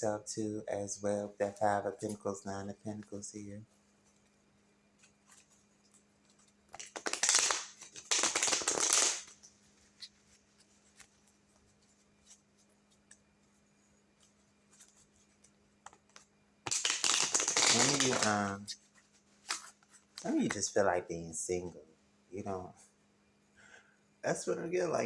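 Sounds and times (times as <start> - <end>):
cards being shuffled: 5.0 - 11.6, 14.2 - 20.7.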